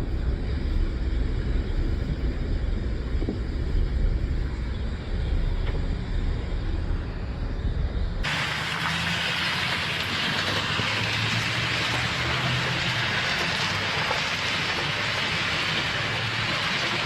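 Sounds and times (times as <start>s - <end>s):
low rumble: 0.0s - 17.0s
bright rushing hiss: 8.2s - 17.0s.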